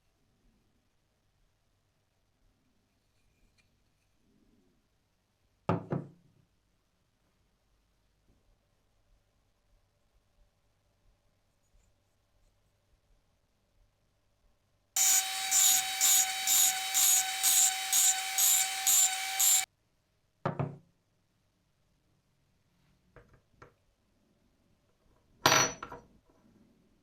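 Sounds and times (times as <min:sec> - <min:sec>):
steady whine: 0:15.0 - 0:19.7
tool scraping wood: 0:15.0 - 0:19.7.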